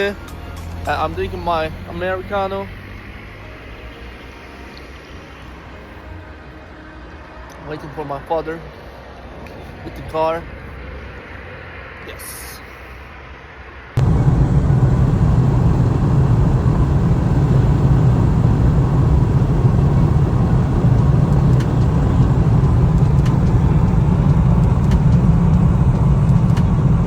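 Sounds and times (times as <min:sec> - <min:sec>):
car driving road noise: 0:00.0 - 0:06.3, 0:12.9 - 0:27.0.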